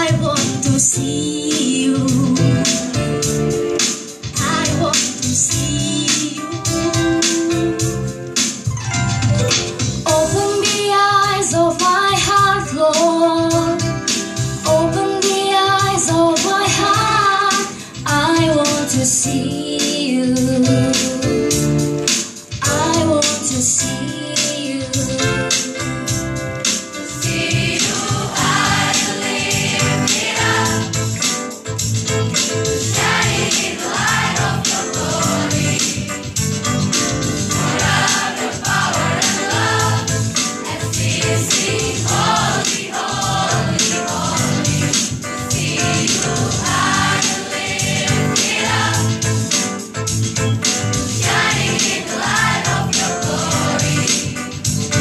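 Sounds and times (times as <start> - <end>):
instrumental accompaniment: 0.2 - 55.0
choir singing: 27.2 - 31.0, 32.9 - 36.2, 37.5 - 49.2, 51.2 - 54.4.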